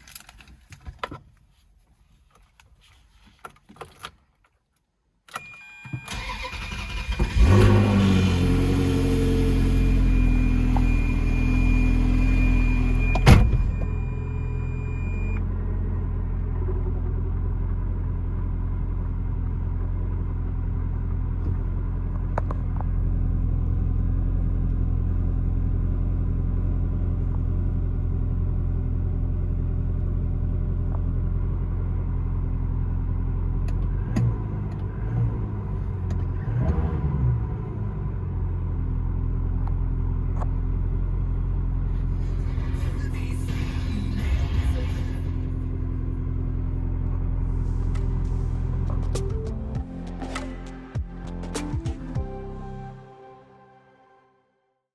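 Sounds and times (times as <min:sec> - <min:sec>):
car engine idling: 0:45.2 - 0:52.8.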